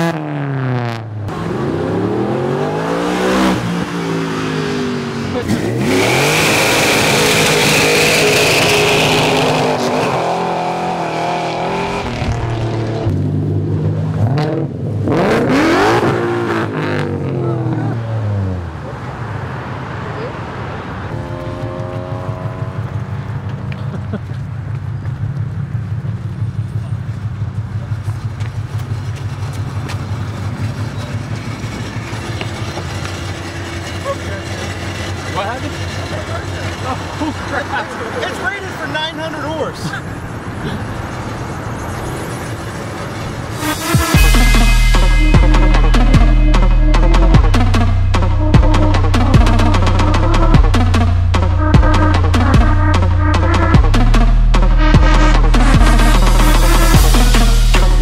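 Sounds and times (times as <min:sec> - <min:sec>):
car engine revving: 0:00.0 - 0:58.0
tires squealing: 0:01.3 - 0:13.1, 0:28.0 - 0:47.3.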